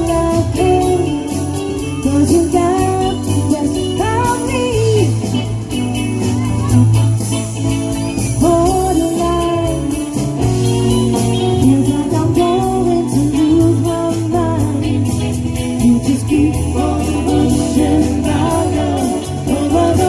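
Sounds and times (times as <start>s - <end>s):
lead singer singing: 0.0s - 5.5s, 8.3s - 10.4s, 11.2s - 20.0s
live pop-rock band playing: 0.0s - 20.0s.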